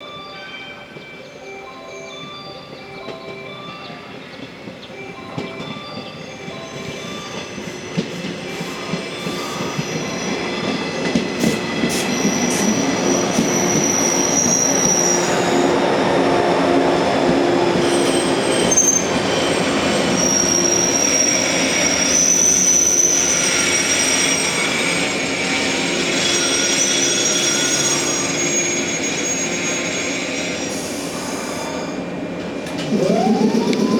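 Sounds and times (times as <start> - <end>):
electric train rolling: 0.1 - 33.9
wheel or brake squeals: 7.6 - 15.7, 17.8 - 31.8.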